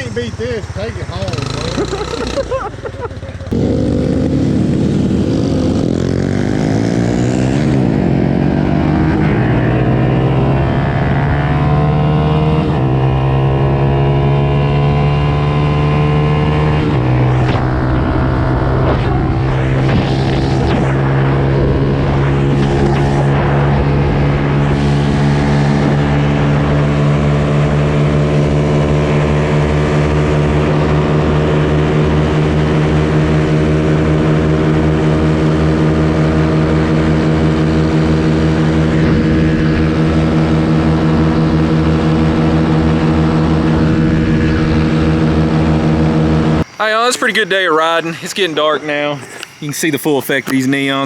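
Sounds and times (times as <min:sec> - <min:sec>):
mini bike engine running: 0:00.0 - 0:07.0.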